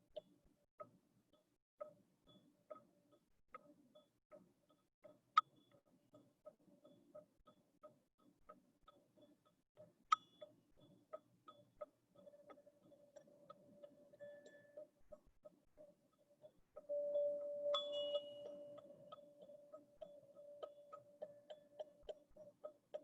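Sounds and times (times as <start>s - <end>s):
quiet regular ticking: 0.0s - 23.0s
faint steady tone: 10.1s - 23.0s.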